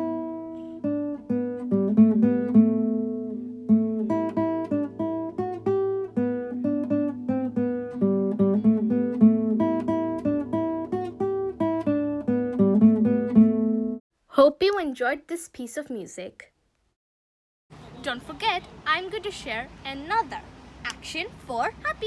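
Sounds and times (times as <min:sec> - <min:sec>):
acoustic guitar tune: 0:00.0 - 0:14.0.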